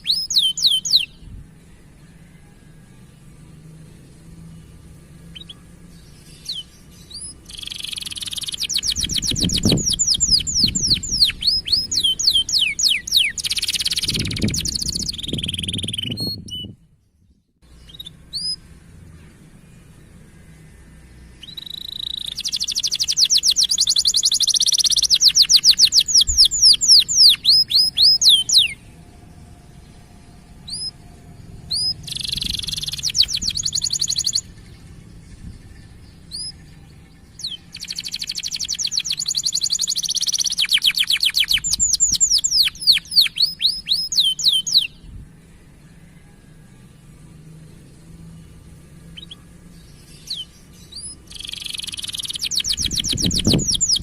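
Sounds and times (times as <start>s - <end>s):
canary chirping: 0.0s - 1.2s, 5.2s - 16.7s, 17.7s - 18.8s, 21.3s - 35.0s, 35.7s - 45.1s, 49.0s - 54.0s.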